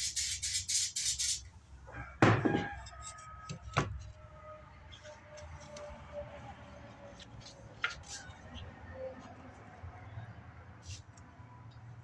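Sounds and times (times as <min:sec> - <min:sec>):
aerosol spray hissing: 0:00.0 - 0:01.4.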